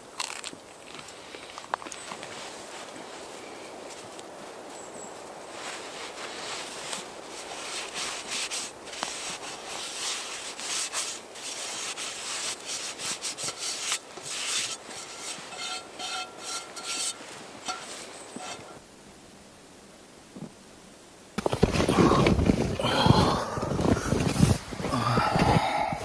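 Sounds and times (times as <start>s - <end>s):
rough rubbing and scraping: 5.6s - 18.8s, 21.4s - 25.6s.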